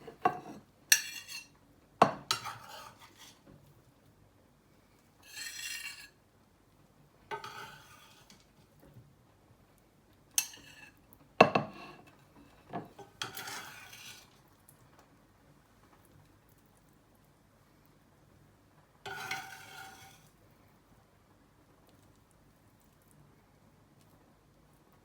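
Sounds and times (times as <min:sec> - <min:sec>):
metal utensil scraping cookware: 0:00.0 - 0:01.5, 0:02.2 - 0:03.4, 0:05.2 - 0:06.2, 0:07.3 - 0:08.5, 0:10.4 - 0:11.0, 0:12.8 - 0:14.3, 0:19.1 - 0:20.3.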